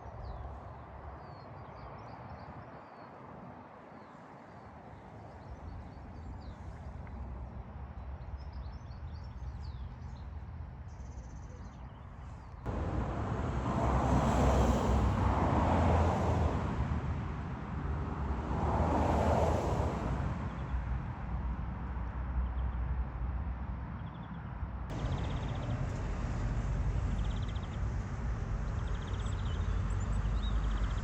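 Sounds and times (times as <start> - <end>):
road traffic rumble: 12.1 - 31.0
vehicles passing: 12.6 - 31.0.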